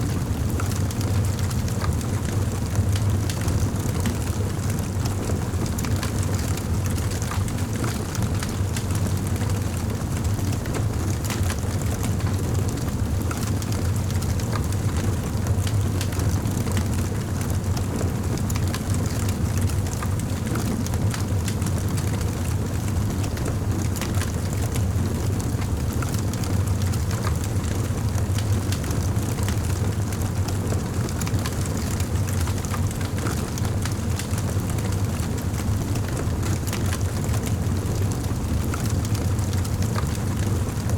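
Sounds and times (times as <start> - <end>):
wood fire crackling: 15.7 - 16.2.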